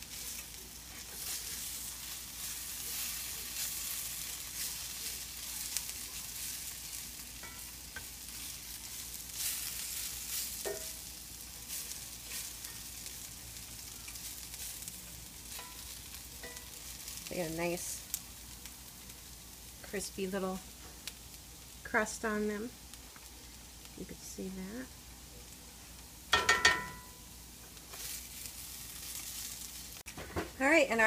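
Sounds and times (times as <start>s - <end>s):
spatula scraping a skillet: 0.0s - 17.2s, 27.8s - 29.7s
bananas and onions sizzling in oil: 0.0s - 31.0s.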